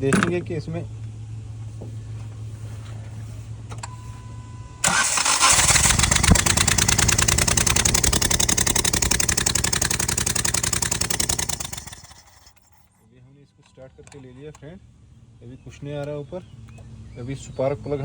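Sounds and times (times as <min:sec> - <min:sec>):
engine cranked by starter: 0:04.8 - 0:12.8.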